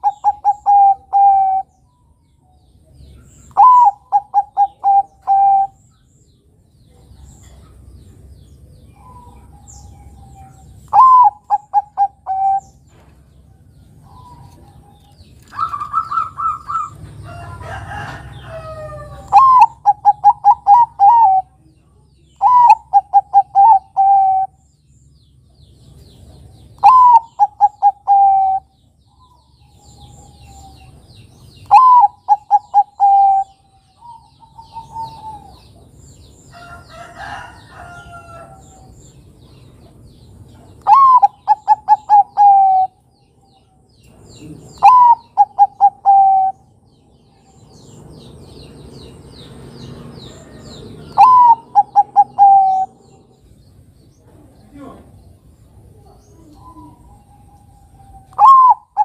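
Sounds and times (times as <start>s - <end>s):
dove cooing: 0.0s - 1.7s, 3.4s - 5.8s, 8.9s - 12.8s, 14.0s - 21.6s, 22.4s - 24.6s, 26.8s - 28.8s, 31.6s - 35.8s, 40.8s - 43.0s, 44.4s - 46.7s, 50.5s - 53.4s, 55.9s - 59.0s
rough bird call: 50.1s - 53.2s, 56.7s - 59.0s
faint high bird chirps: 56.0s - 59.0s.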